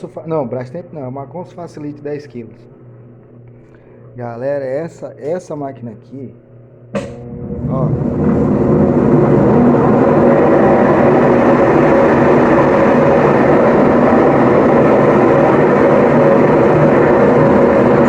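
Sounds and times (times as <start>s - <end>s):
washing machine spinning: 6.9s - 18.0s.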